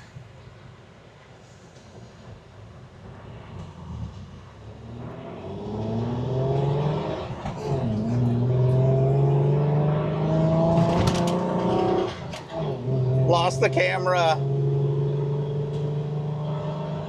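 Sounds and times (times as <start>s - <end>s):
engine accelerating hard: 3.6s - 17.0s.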